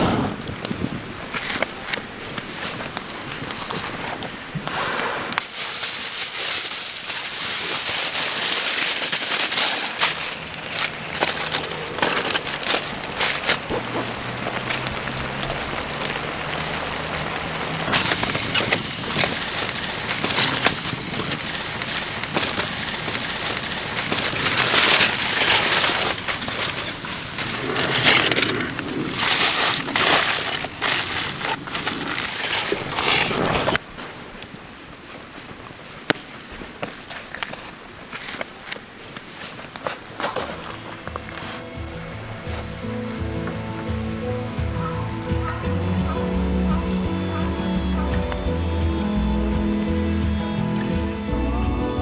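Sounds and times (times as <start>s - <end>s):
wood fire crackling and snapping: 0.0s - 52.0s
steady hiss: 4.4s - 35.6s, 39.2s - 52.0s.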